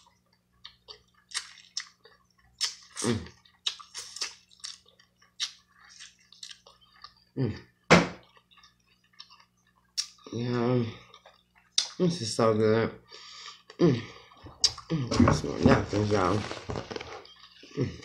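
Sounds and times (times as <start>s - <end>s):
wet chewing and lip-smacking: 0.0s - 7.3s, 8.2s - 10.3s, 11.1s - 12.0s.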